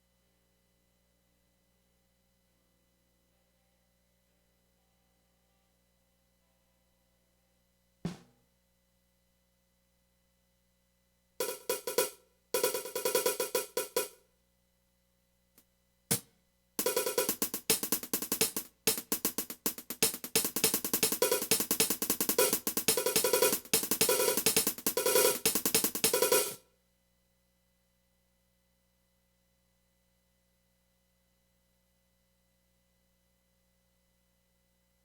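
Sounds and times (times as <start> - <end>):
drum kit playing: 8.1 - 8.3, 11.4 - 14.1, 16.1 - 26.6.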